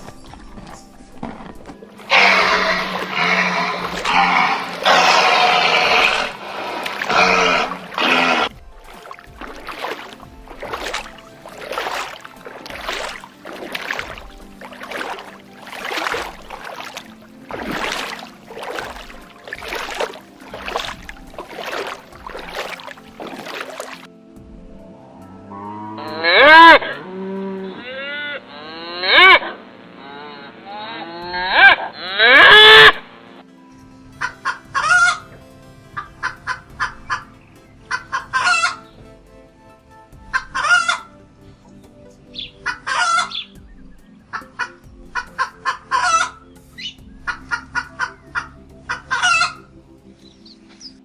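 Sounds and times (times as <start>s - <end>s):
hens clucking: 1.9s - 8.5s, 34.2s - 35.3s, 36.0s - 37.3s, 37.9s - 39.0s, 40.3s - 41.1s, 42.4s - 43.5s, 44.3s - 46.4s, 47.3s - 49.6s.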